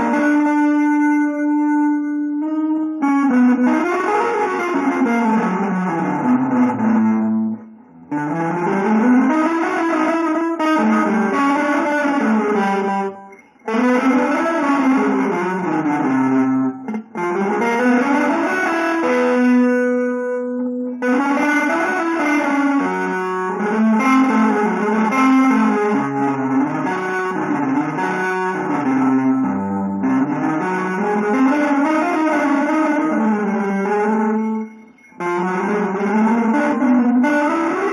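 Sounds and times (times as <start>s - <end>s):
guitar single-note runs: 0.0s - 37.9s.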